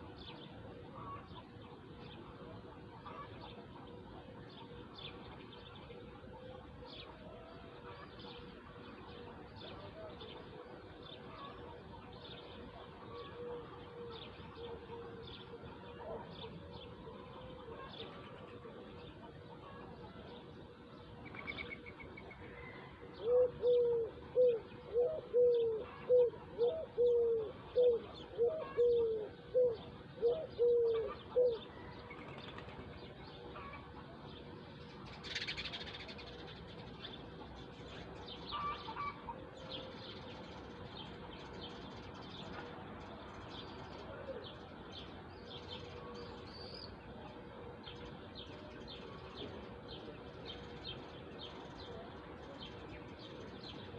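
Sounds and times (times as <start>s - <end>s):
bird hooting: 22.6s - 31.7s.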